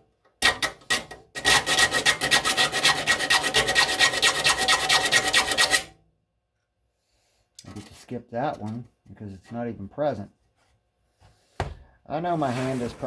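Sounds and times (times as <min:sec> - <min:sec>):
file rasping on saw teeth: 0:01.4 - 0:05.9.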